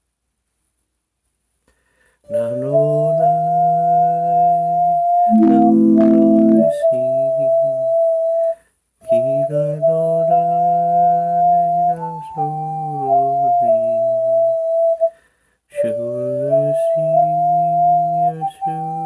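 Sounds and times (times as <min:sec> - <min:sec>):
electronic keyboard slow tune: 0:02.8 - 0:08.4.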